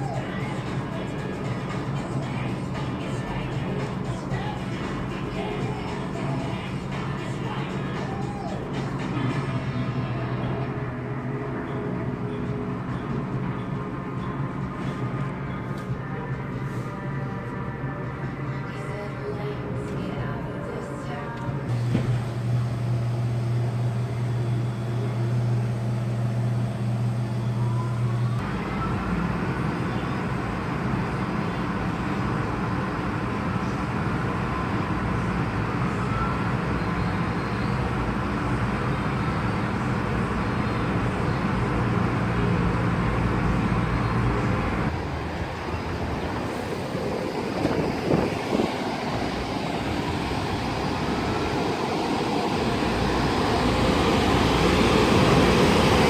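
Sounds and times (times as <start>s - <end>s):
motor hum: 21.6s - 56.0s.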